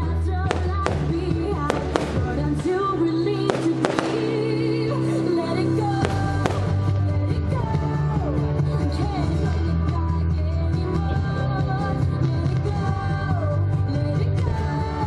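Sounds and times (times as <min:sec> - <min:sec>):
loud music: 0:00.0 - 0:15.0
fireworks bursting: 0:00.4 - 0:07.6.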